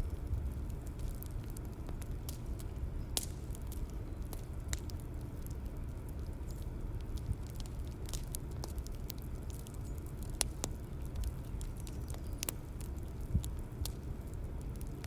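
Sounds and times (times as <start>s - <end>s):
fire crackles and pops: 0.0s - 15.0s
low rumble of fire: 0.0s - 15.0s.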